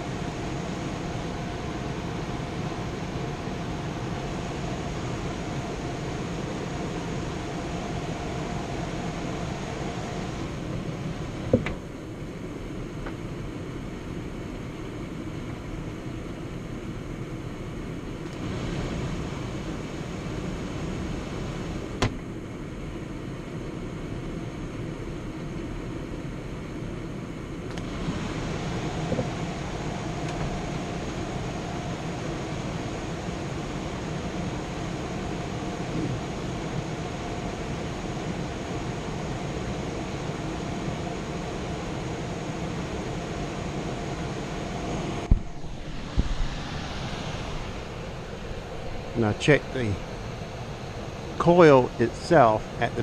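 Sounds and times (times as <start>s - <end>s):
air handler blower whoosh: 27.8s - 41.0s, 41.8s - 52.8s.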